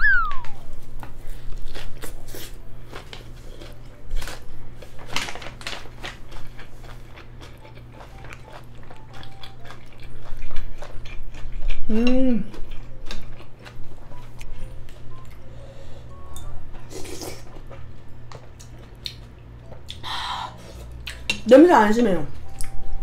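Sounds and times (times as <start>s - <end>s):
wet chewing clicks and smacks: 6.0s - 11.8s, 17.5s - 20.1s.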